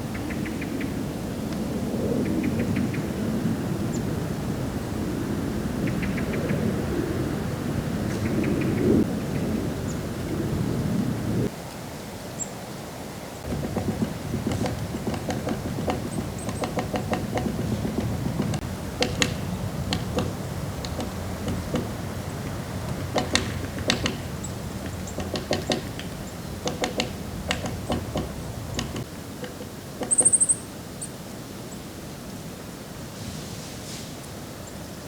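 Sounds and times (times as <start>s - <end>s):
sharp clicks and knocks: 13.4s - 30.5s
high fast bird trill: 30.0s - 30.7s.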